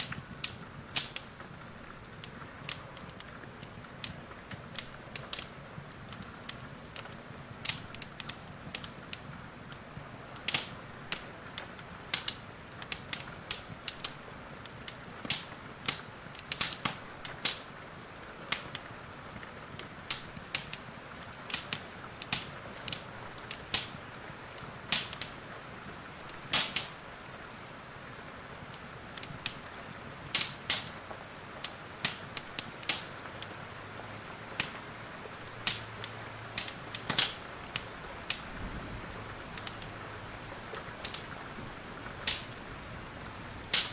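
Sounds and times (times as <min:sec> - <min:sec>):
rain hissing: 0:00.0 - 0:43.9
wood fire crackling: 0:00.0 - 0:43.9.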